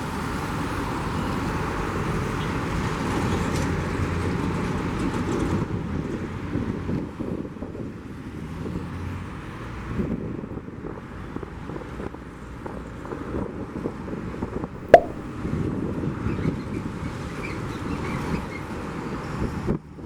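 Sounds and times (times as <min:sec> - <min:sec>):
sharp click: 0:14.9 - 0:15.2.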